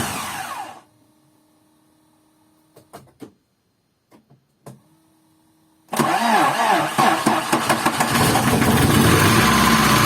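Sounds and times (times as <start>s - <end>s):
faint steady hum: 0.4s - 5.9s.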